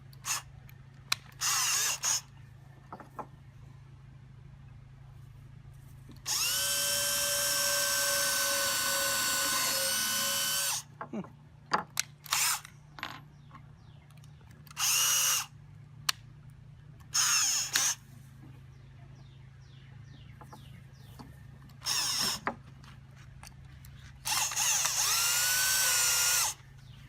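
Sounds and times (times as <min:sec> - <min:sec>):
power drill driving screws into wood: 0:01.3 - 0:02.3, 0:06.2 - 0:10.9, 0:12.2 - 0:12.7, 0:14.7 - 0:15.5, 0:17.1 - 0:18.0, 0:21.8 - 0:22.5, 0:24.2 - 0:26.6.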